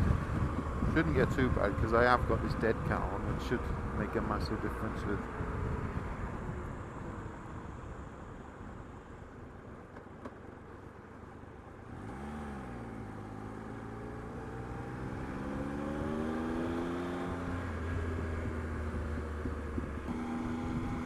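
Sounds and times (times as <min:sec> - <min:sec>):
wind noise: 0:00.0 - 0:08.9, 0:15.3 - 0:21.0
motorcycle engine accelerating: 0:11.8 - 0:21.0.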